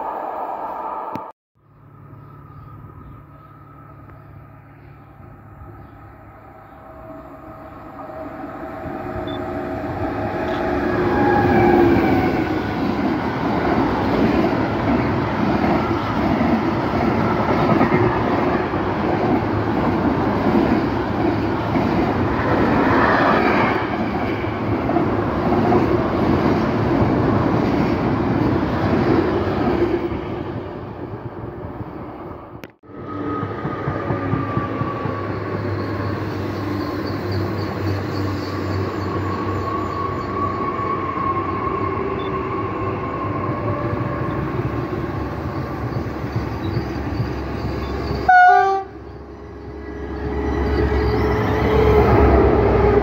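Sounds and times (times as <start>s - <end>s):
electric locomotive whine: 0.0s - 53.0s
freight wagons rumbling on rails: 42.3s - 53.0s.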